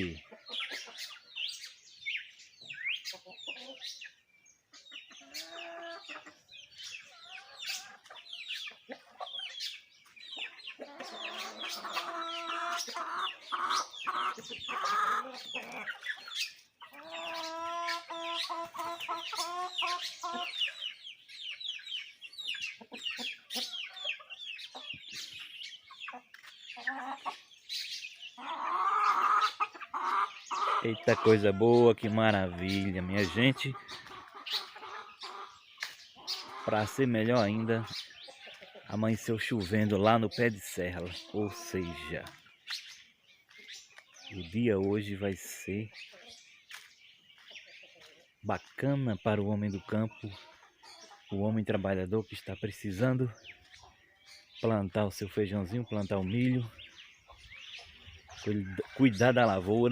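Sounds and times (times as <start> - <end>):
hens clucking: 0.0 - 59.9
songbirds chirping: 0.0 - 59.9.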